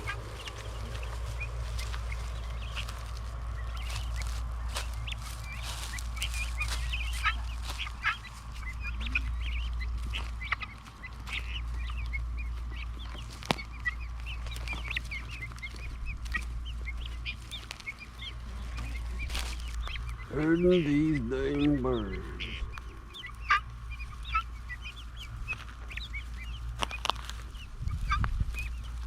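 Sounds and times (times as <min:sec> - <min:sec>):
steady low rumble: 0:00.0 - 0:29.0
young birds chirping and peeping: 0:00.0 - 0:29.0.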